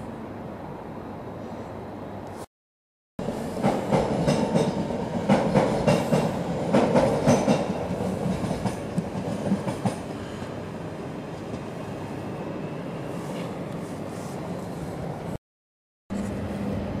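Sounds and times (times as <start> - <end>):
train rumble: 3.2 - 15.4, 16.1 - 17.0.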